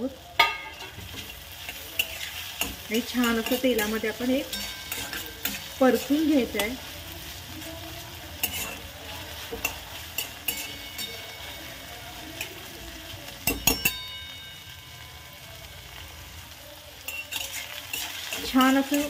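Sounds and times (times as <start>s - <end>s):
vegetables sizzling in oil: 0.0s - 19.0s
metal spatula scraping pan: 0.4s - 12.7s, 17.0s - 19.0s.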